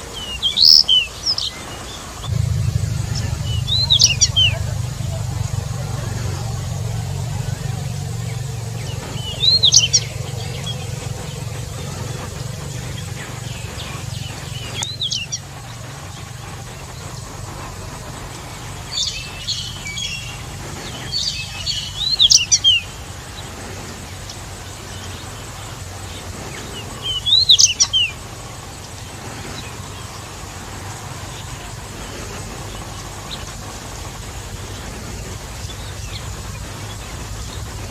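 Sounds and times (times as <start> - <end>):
steady low hum: 2.1 - 37.9
bird singing high notes: 2.3 - 15.2.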